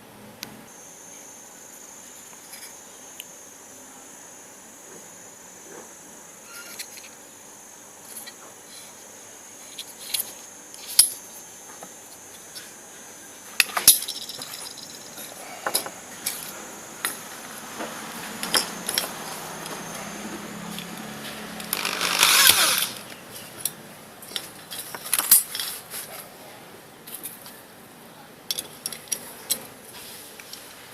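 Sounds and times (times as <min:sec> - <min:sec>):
faint steady hiss: 0:00.0 - 0:30.9
small metal parts clinking: 0:13.6 - 0:17.2, 0:18.4 - 0:20.0.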